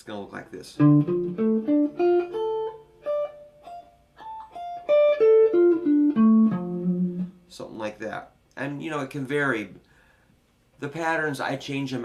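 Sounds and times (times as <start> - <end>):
guitar playing plucked arpeggio: 0.8 - 7.4.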